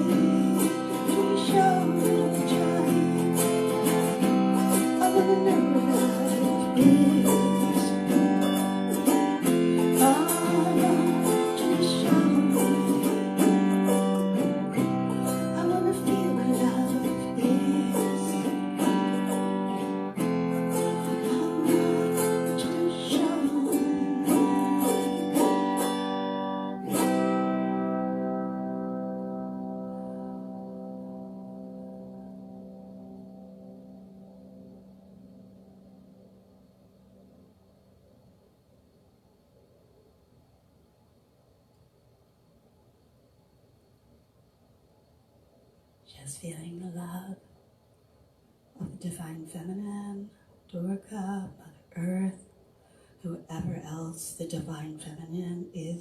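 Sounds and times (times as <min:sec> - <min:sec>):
acoustic guitar plucking: 0:00.0 - 0:36.5, 0:52.9 - 0:56.0.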